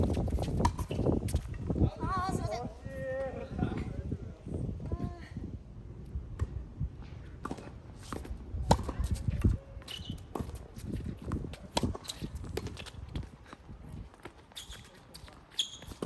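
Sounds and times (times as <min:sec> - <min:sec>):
shoes on court surface: 0:00.0 - 0:01.8, 0:06.4 - 0:16.0
wind buffeting microphone: 0:00.0 - 0:14.2.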